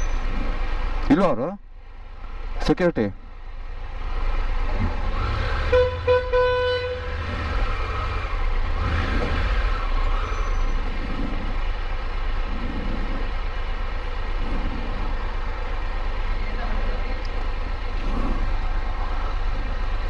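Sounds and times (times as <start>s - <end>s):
road noise: 0.0s - 20.0s
motorcycle engine rumble: 3.2s - 20.0s
vehicle horn toots: 5.6s - 7.2s.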